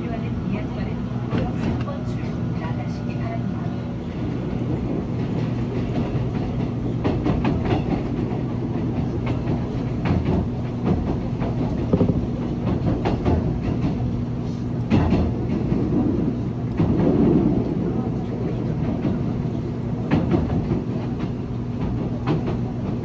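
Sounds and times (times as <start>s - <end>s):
train rumble and motor hum: 0.0s - 23.0s
wheels clacking over rail joints: 4.8s - 14.3s, 19.9s - 23.0s.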